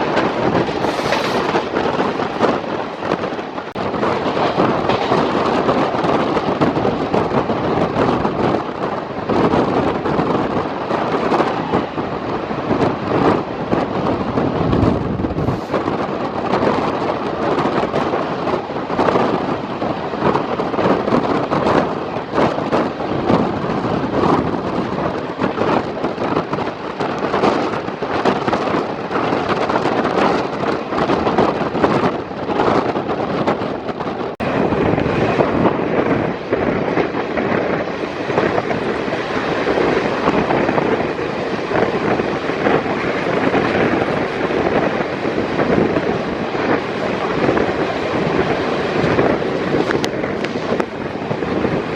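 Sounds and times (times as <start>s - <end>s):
diesel locomotives chugging: 0.0s - 30.1s
train wheels clattering on track: 0.0s - 51.9s.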